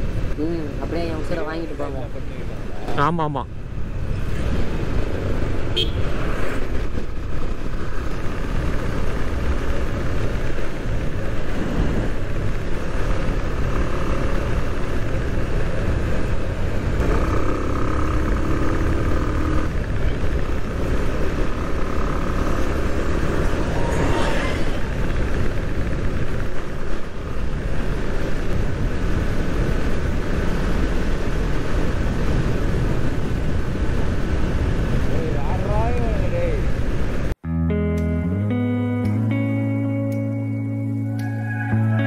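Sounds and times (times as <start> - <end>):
road and wind noise: 0.0 - 42.0
traffic: 0.0 - 42.0
vehicle horn: 5.7 - 6.1
motorcycle engine running: 12.2 - 34.9.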